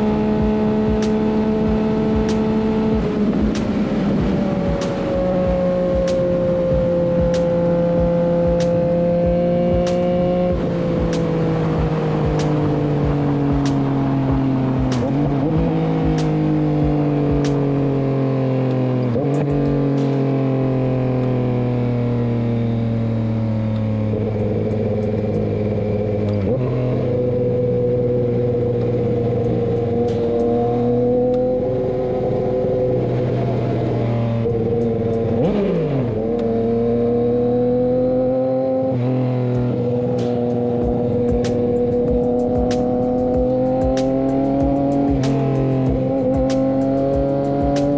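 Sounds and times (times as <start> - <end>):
motorcycle engine running: 0.0 - 47.9
regular ticking: 40.2 - 47.9.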